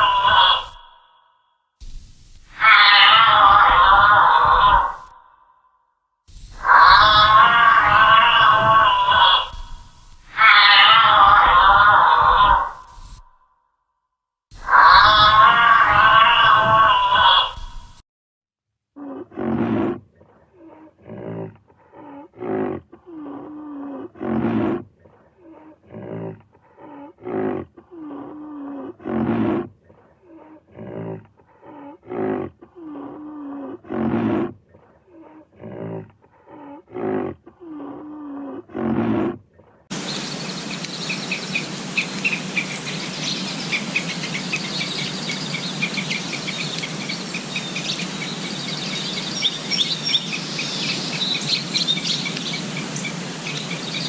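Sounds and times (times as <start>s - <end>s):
animal calling: 0.0s - 1.3s, 2.5s - 5.3s, 6.6s - 13.4s, 14.6s - 18.0s, 29.9s - 54.0s
rapid high chirping: 39.9s - 54.0s.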